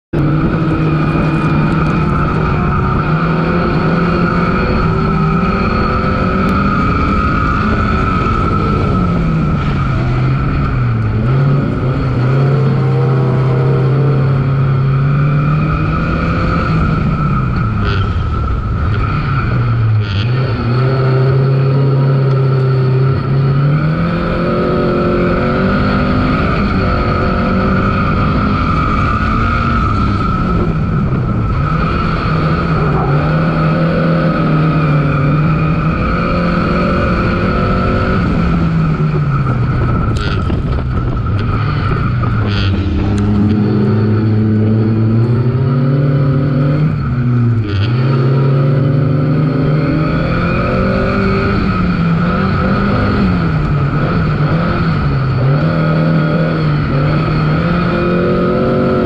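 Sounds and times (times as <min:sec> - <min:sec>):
car engine driven hard: 0:00.0 - 0:59.0
steady high whine: 0:00.1 - 0:59.0.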